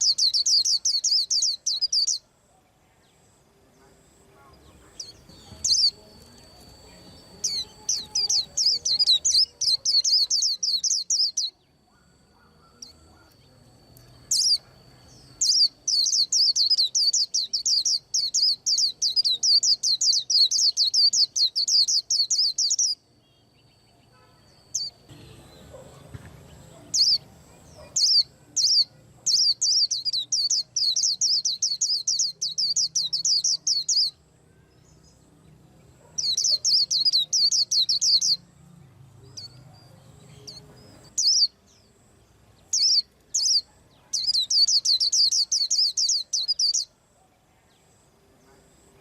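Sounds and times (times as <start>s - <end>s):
bird twittering: 0.0s - 2.2s, 4.7s - 23.0s, 26.8s - 34.2s, 36.0s - 38.4s, 40.3s - 41.6s, 42.7s - 46.9s.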